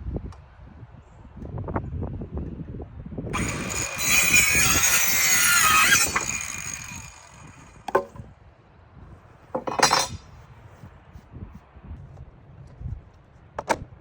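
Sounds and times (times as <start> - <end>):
circular saw cutting wood: 3.4 - 8.0, 9.6 - 10.2
clattering knocks: 9.6 - 10.2.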